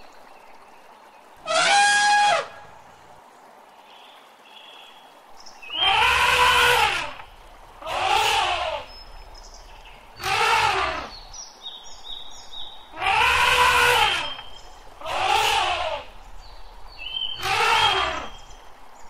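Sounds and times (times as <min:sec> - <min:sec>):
elephant trumpeting: 0:01.4 - 0:02.6, 0:05.8 - 0:07.2, 0:07.8 - 0:08.9, 0:10.2 - 0:11.2, 0:12.9 - 0:14.4, 0:15.0 - 0:16.2, 0:17.3 - 0:18.4.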